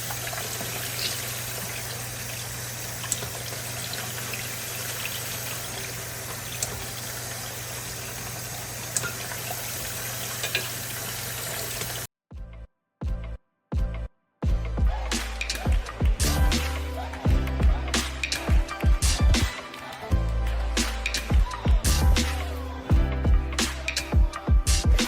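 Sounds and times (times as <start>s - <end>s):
faucet running into a sink: 0.0s - 12.1s.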